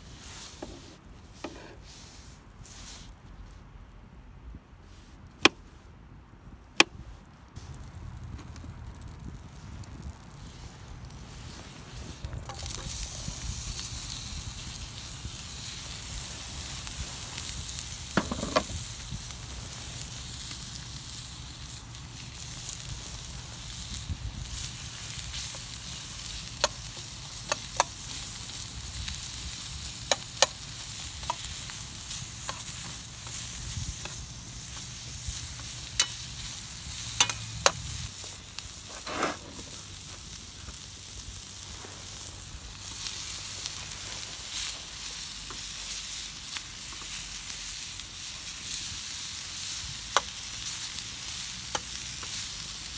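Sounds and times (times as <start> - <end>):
food sizzling in a pan: 11.4 - 52.9.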